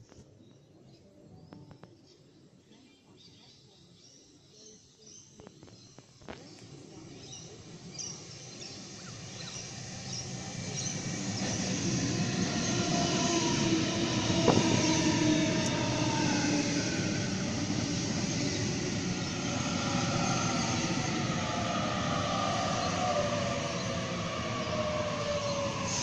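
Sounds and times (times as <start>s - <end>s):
train wheels rumbling on rails: 8.1s - 26.0s.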